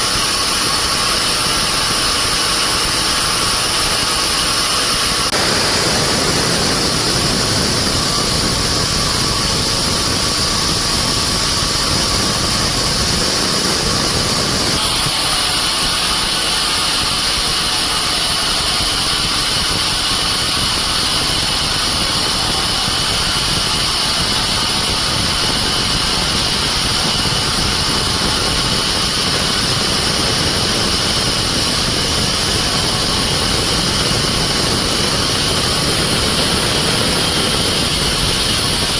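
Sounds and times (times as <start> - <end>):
sawmill machinery running: 0.0 - 38.9
steady high-pitched tones: 5.1 - 34.4.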